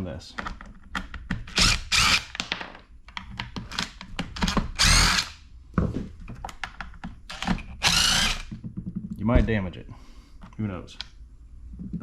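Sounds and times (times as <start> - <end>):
cordless drill running: 1.6 - 2.3, 4.8 - 5.4, 7.3 - 8.5
clicks and rattles of handling: 6.2 - 7.6.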